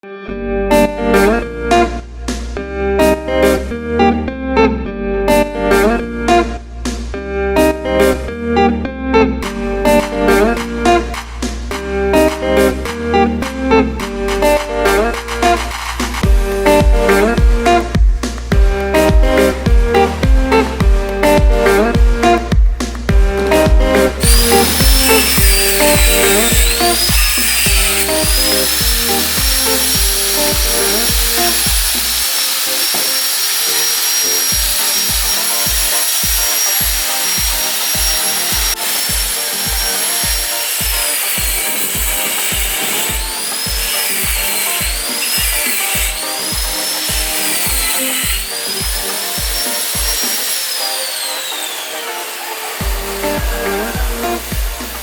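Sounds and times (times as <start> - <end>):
background music with beat: 0.7 - 55.0
power tool whine: 24.2 - 55.0.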